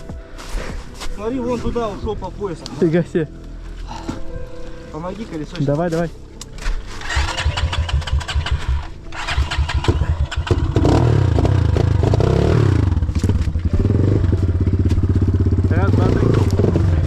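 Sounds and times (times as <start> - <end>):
motorcycle engine sputtering and revving: 7.0 - 17.0.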